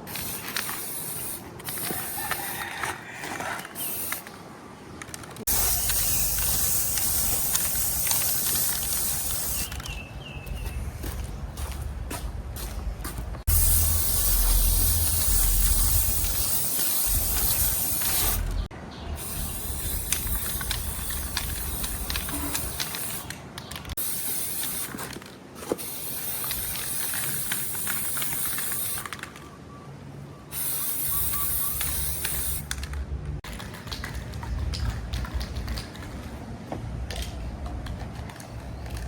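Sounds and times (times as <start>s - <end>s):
air hissing from a nozzle: 0.1s - 2.7s, 5.5s - 9.8s, 13.5s - 23.3s, 24.0s - 25.0s, 25.8s - 29.1s.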